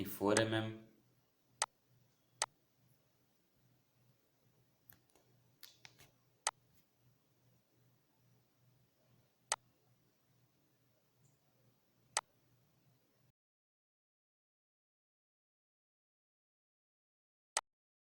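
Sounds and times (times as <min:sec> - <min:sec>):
faint low hum: 0:00.0 - 0:13.3.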